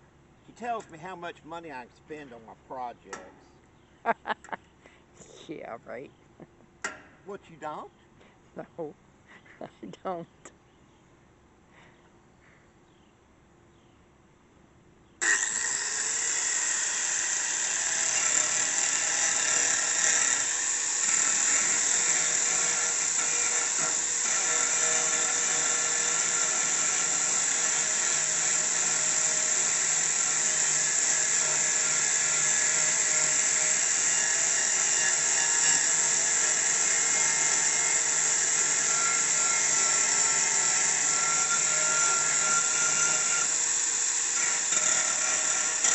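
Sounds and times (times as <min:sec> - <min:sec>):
electric grinder grinding steel: 0:15.2 - 0:45.9.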